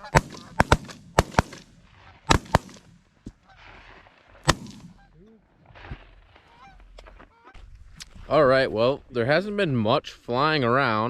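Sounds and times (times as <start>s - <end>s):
shotgun shots: 0.0s - 3.1s, 4.4s - 5.0s
goose honk: 6.3s - 7.6s.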